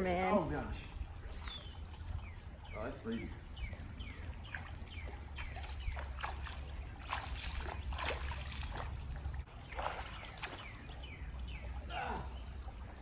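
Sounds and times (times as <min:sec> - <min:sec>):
feet splashing through water: 0:03.6 - 0:13.0.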